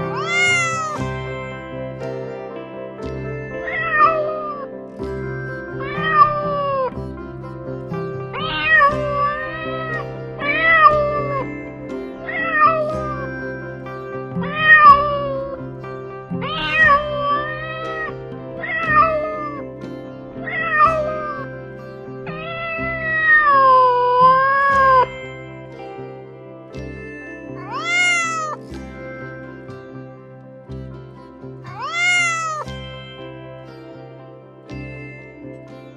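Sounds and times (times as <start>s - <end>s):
background music of held notes: 0.0s - 35.9s
cat meowing: 0.2s - 1.0s, 16.4s - 19.6s, 20.5s - 21.4s, 27.6s - 28.6s, 31.7s - 32.7s.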